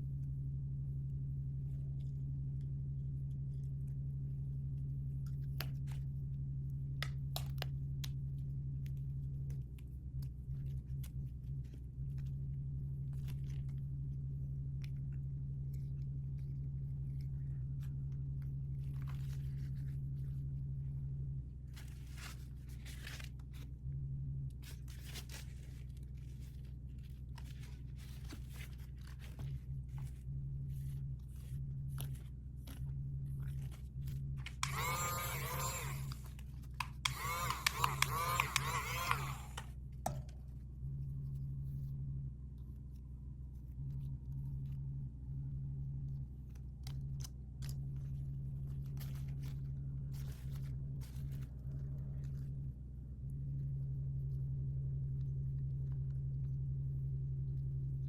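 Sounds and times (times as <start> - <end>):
faint low hum: 0.0 - 58.0
packaging crinkling and tearing: 21.8 - 23.6
packaging clicks and crackles: 33.4 - 39.7.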